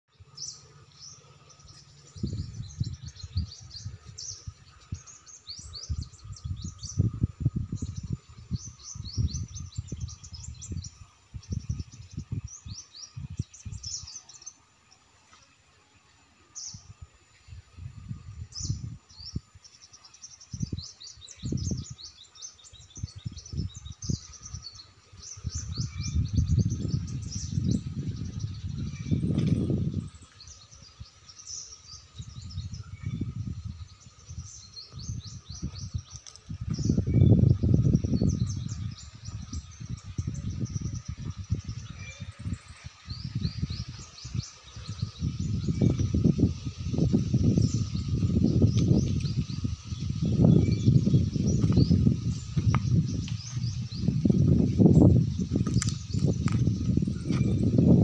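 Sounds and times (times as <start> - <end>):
small birds chirping: 0.1 - 58.0.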